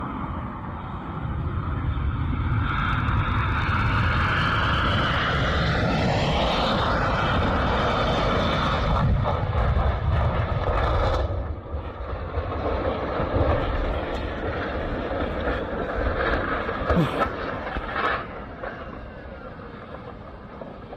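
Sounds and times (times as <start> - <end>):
jet engines whining: 0.0 - 9.5.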